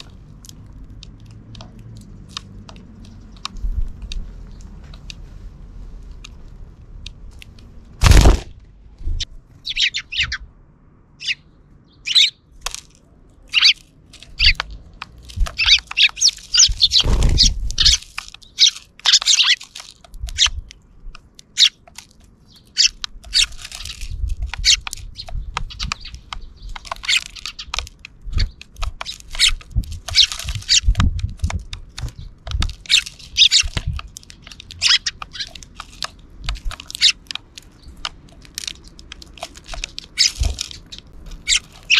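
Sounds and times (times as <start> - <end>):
small clicks and taps: 0.0 - 5.2, 18.0 - 41.8
sparrows chirping: 0.0 - 6.5, 9.0 - 41.9
loud thump: 8.0 - 8.6.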